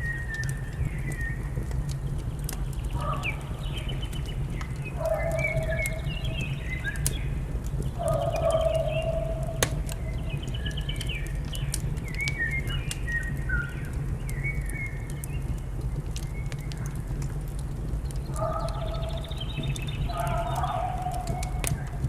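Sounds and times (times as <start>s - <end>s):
wood fire crackling and popping: 0.0s - 22.0s
small birds chirping: 18.0s - 21.8s.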